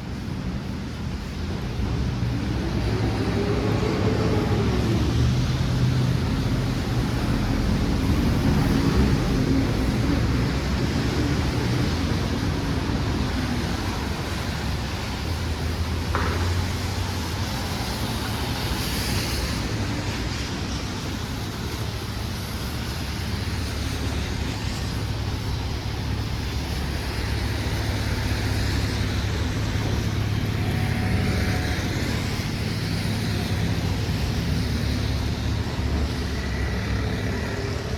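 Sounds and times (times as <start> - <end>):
passing car traffic: 0.0 - 37.9.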